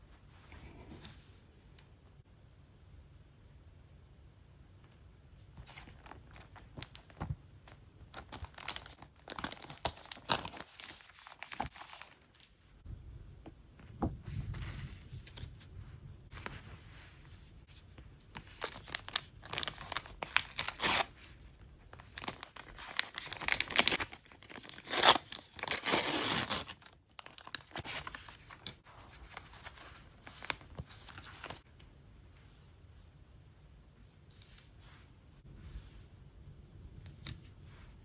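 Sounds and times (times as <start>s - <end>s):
paper crinkling and scraping: 8.2s - 12.5s, 16.3s - 31.6s.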